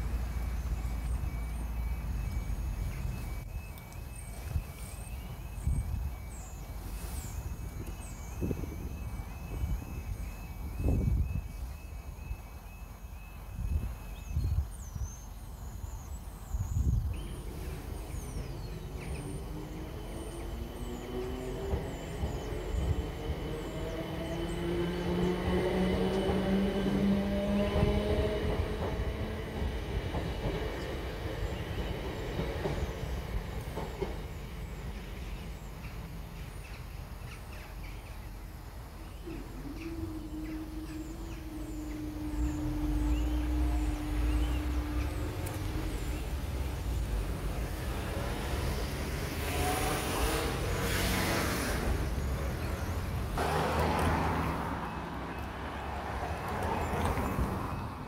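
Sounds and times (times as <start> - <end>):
electric train whine and wheel clatter: 0.0 - 58.0
steady hum of crossing barriers: 0.0 - 58.0
cars driving past: 39.4 - 58.0.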